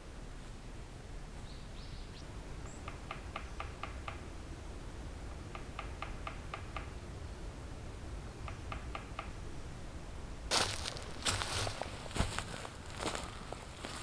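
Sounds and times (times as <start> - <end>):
low steady rumble: 4.0 - 14.0.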